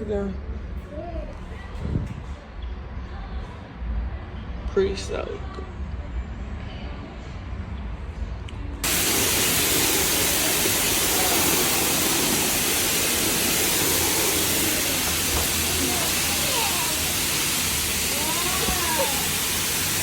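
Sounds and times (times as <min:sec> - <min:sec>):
spraying water hiss: 0:08.8 - 0:20.0.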